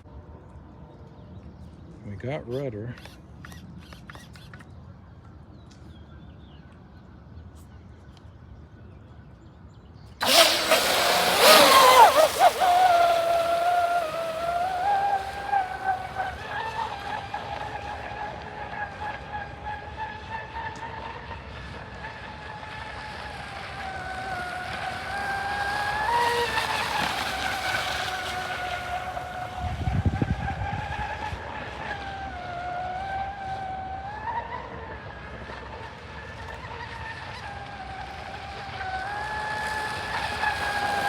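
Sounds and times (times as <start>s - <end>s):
electric motor whining: 10.2s - 17.6s, 37.5s - 41.0s.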